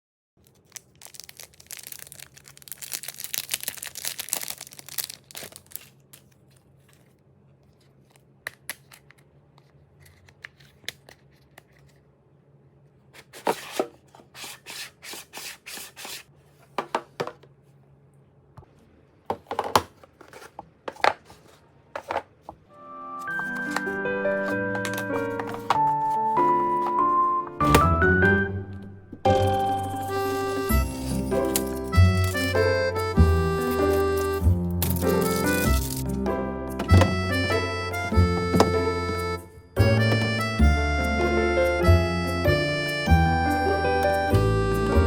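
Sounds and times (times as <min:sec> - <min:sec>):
plastic packaging rustling and tearing: 0:00.4 - 0:09.1, 0:23.2 - 0:27.0, 0:30.5 - 0:32.6, 0:33.5 - 0:36.1
plastic items clicking: 0:23.4 - 0:25.9.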